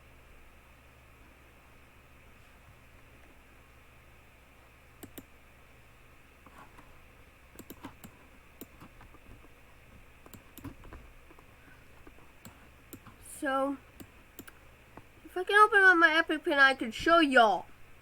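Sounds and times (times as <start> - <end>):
keyboard and mouse clicking: 5.0 - 5.3, 7.6 - 9.4, 10.2 - 11.4, 12.0 - 13.2, 14.0 - 15.1.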